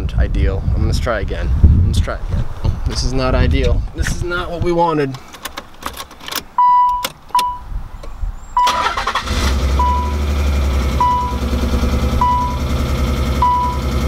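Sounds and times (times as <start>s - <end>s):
car warning chime beeping: 6.6s - 7.7s, 8.6s - 10.3s, 10.9s - 12.7s, 13.4s - 14.0s
engine running rough: 9.2s - 14.0s.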